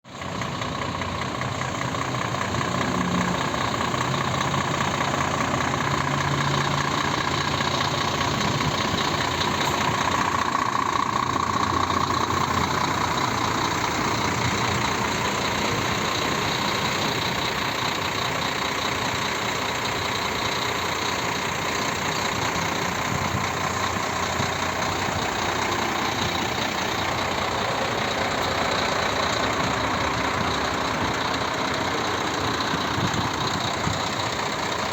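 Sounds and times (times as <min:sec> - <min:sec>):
truck diesel engine idling: 0:00.0 - 0:34.9.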